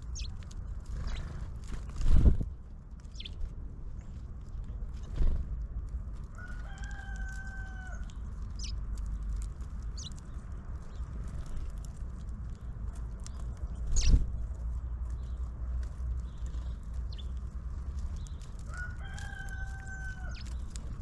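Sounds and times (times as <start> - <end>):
small birds chirping: 0.0 - 5.5, 6.1 - 21.0
rooster crowing: 6.3 - 8.1, 18.7 - 20.5.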